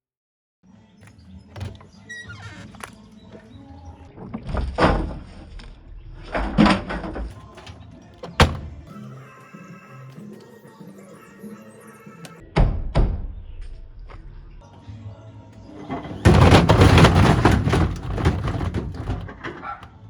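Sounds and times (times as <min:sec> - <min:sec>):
washing machine drum rumbling: 0:01.6 - 0:01.8, 0:06.7 - 0:08.9, 0:15.7 - 0:19.8
bottle thudding in drum: 0:07.6 - 0:08.9.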